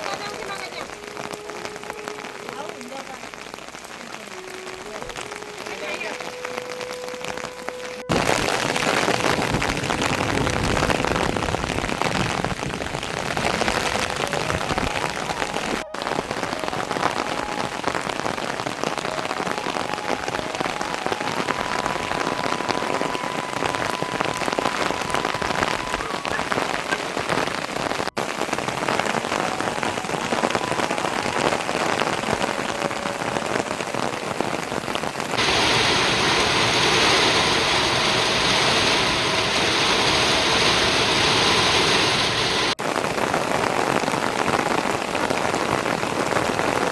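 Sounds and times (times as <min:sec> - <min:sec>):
rain falling on surfaces: 0:00.0 - 0:46.9.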